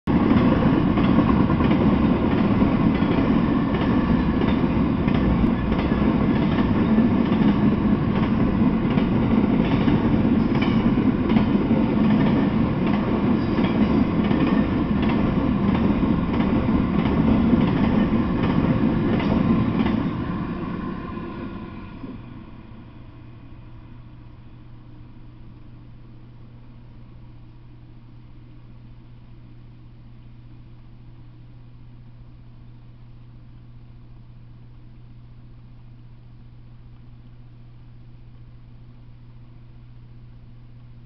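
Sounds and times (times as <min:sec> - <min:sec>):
freight train wheels rumbling: 0:00.1 - 0:25.0
wheels clicking over rail joints: 0:00.2 - 0:20.2.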